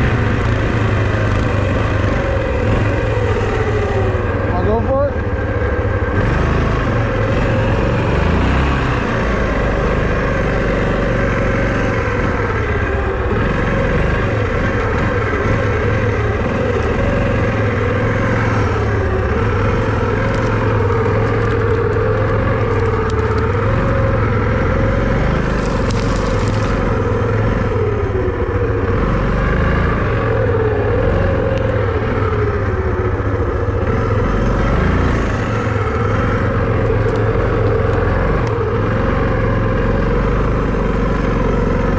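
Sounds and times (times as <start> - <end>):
vehicle engine running: 0.0 - 41.9.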